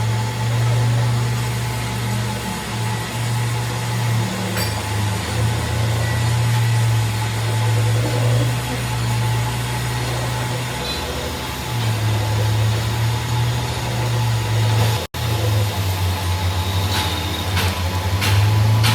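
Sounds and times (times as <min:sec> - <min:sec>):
workshop machinery hum: 0:00.0 - 0:18.9.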